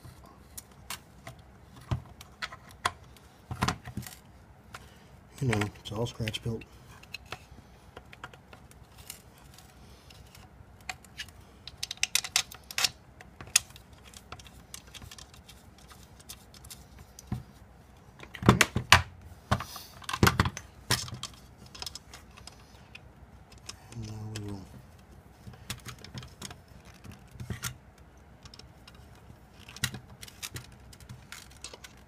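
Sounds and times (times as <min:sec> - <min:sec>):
small metal parts clicking: 0:10.1 - 0:16.8.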